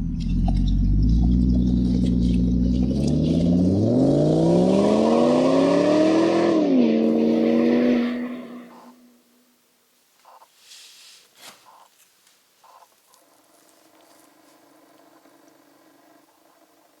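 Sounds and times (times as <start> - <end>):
engine revving: 0.0 - 9.1, 13.2 - 17.0.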